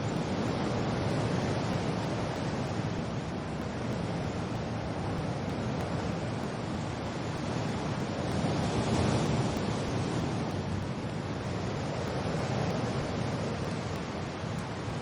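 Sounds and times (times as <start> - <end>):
rain: 0.0 - 15.0
wind: 0.0 - 15.0.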